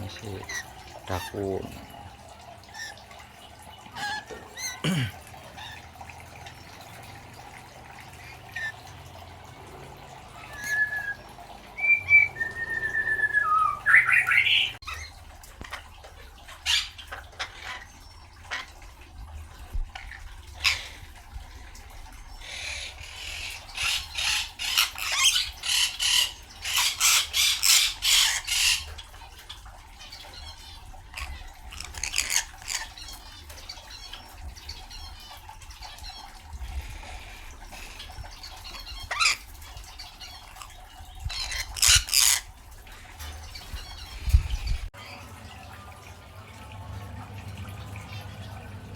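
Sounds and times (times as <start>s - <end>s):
lorikeet whistles and squawks: 10.4s - 14.8s.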